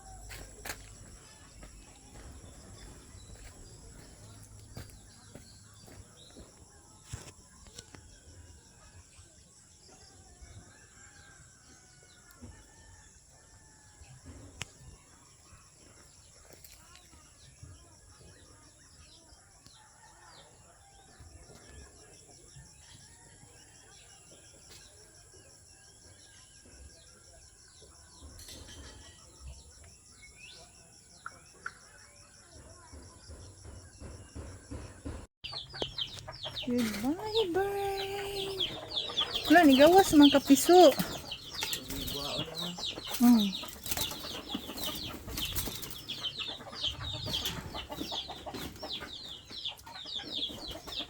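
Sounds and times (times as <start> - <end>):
small birds chirping: 0.0 - 11.2, 20.9 - 51.0
birds calling: 34.4 - 51.0.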